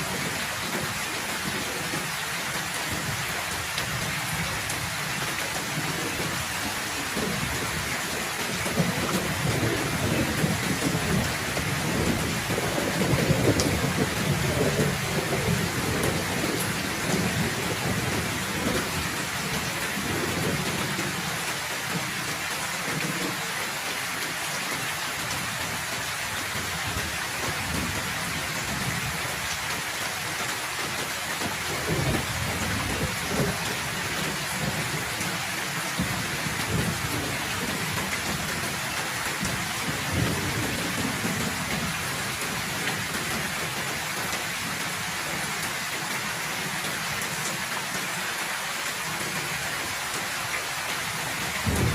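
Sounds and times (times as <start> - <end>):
heavy rain pouring: 0.0 - 51.9
thunder rolling: 51.6 - 51.9.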